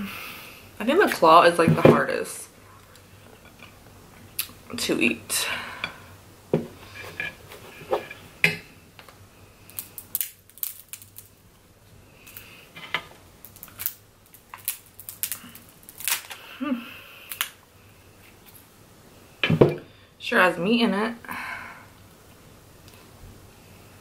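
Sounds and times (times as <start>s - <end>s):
crab shell cracking by hand: 9.7s - 11.4s, 13.4s - 16.4s, 17.2s - 17.6s.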